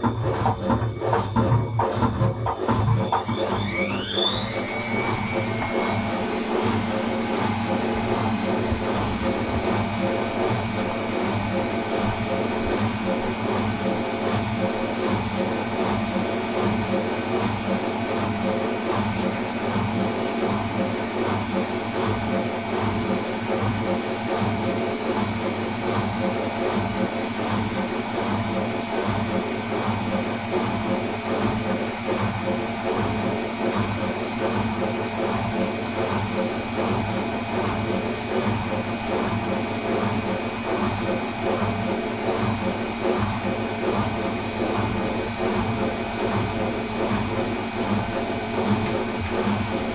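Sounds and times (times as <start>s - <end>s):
washing machine running: 0.0s - 49.9s
thin high whine: 0.6s - 11.0s.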